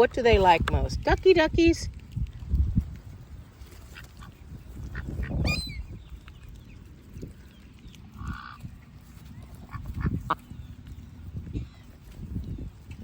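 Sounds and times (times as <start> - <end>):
ducks honking: 8.1 - 8.7, 9.6 - 10.6.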